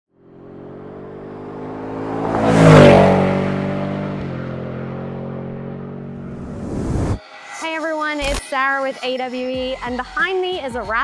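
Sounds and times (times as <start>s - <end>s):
truck exhaust driving past: 5.0s - 7.2s.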